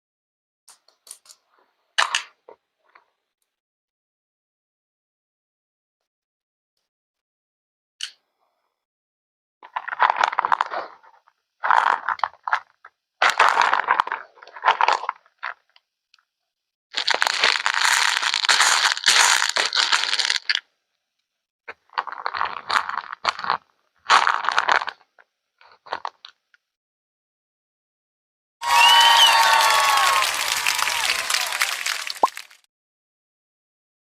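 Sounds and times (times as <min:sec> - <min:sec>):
rustling crinkling handling noise: 0:17.0 - 0:20.6.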